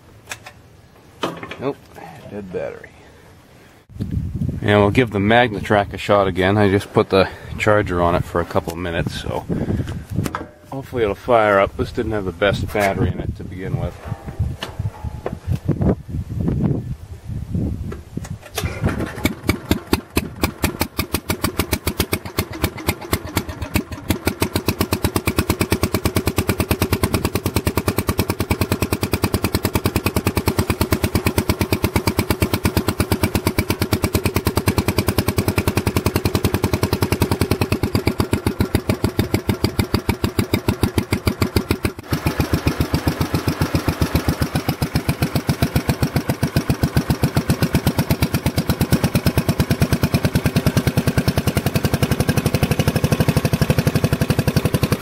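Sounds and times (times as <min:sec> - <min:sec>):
tractor engine running: 0:18.3 - 0:55.0.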